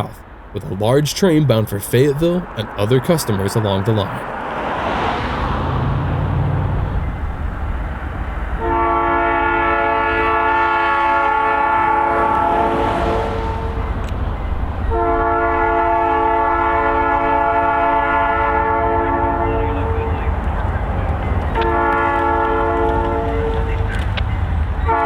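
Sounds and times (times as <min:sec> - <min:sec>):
diesel engine rumbling: 0:00.0 - 0:09.0
locomotive air horn blasts: 0:08.6 - 0:13.9, 0:14.9 - 0:20.2, 0:21.5 - 0:23.9.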